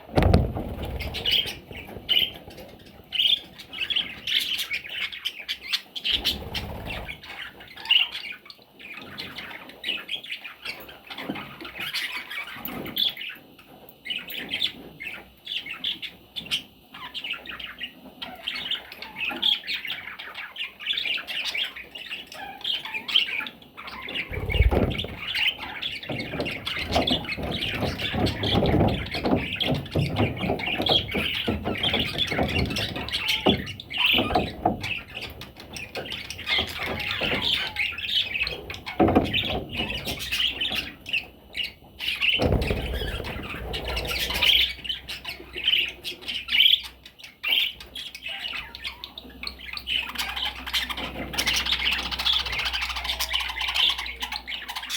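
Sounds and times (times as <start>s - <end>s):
parrot chicks squawking: 0.0s - 54.9s
low bumps: 0.1s - 1.8s, 24.3s - 25.5s.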